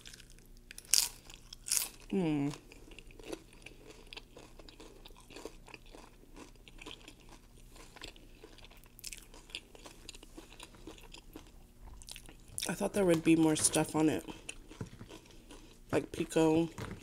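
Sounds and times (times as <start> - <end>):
crunching tortilla chips: 0.0 - 12.8.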